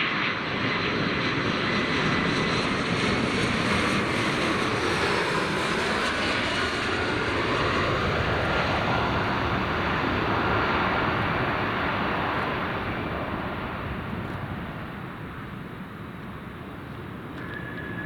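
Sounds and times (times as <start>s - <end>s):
airliner engines roaring: 0.0s - 18.0s.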